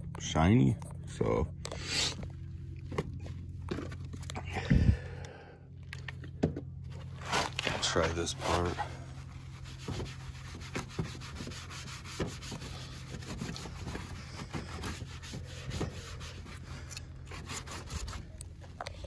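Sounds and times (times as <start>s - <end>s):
cloth rubbing on plastic: 7.1s - 18.3s.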